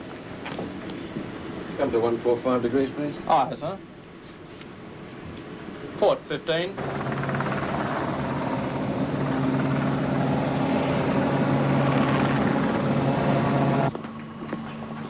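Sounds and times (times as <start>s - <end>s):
loud engine drone: 6.7s - 15.0s.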